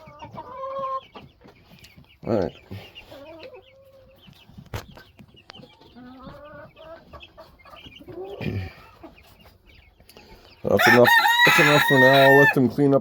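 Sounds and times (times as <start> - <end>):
chickens clucking: 0.0 - 13.0
chicks peeping: 0.0 - 13.0
loud rising chicken call: 10.8 - 12.6.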